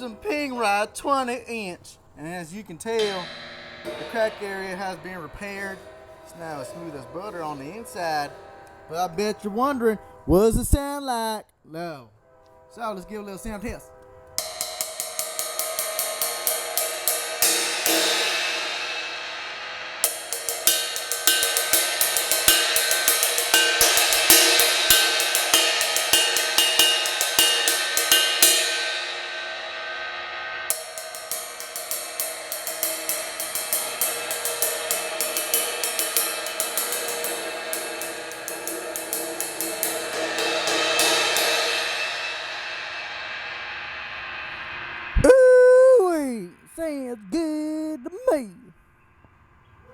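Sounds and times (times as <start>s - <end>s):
ride cymbal struck repeatedly: 2.9s - 9.4s, 14.4s - 45.4s.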